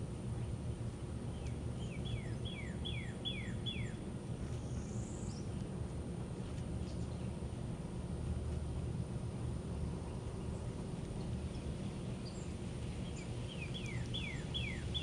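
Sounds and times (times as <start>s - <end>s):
low background rumble: 0.0s - 15.0s
songbird whistling: 1.3s - 4.0s, 12.2s - 15.0s.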